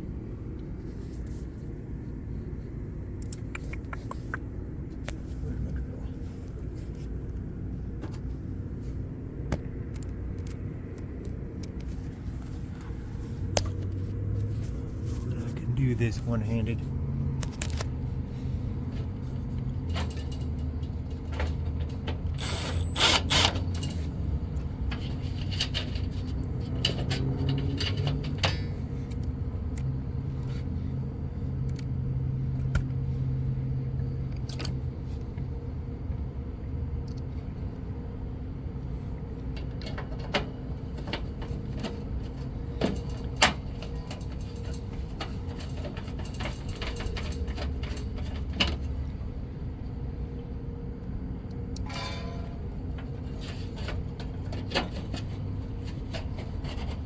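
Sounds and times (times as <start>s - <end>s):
low mechanical hum: 0.0s - 57.0s
sheet metal clanks and scrapes: 24.9s - 28.9s, 51.8s - 57.0s.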